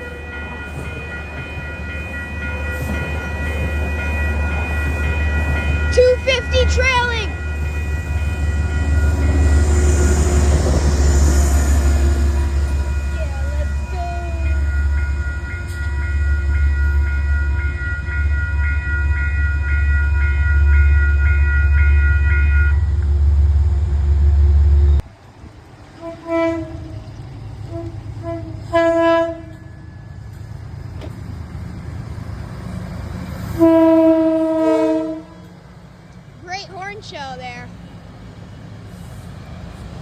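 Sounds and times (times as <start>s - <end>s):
crossing bell ringing: 0.0s - 23.0s, 25.9s - 33.5s
train rumbling past: 0.0s - 40.0s
train horn blasts: 5.8s - 23.0s, 26.0s - 27.0s, 27.7s - 29.8s, 33.5s - 35.5s.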